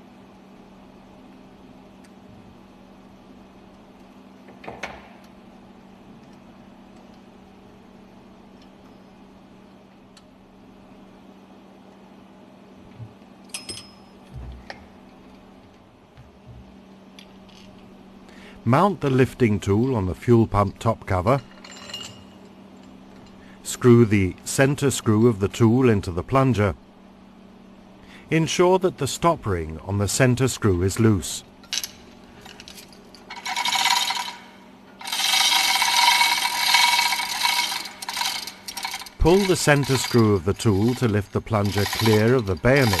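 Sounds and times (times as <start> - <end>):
faint steady hum: 0.0 - 43.0
metal tools clinking: 21.2 - 22.5, 31.6 - 43.0.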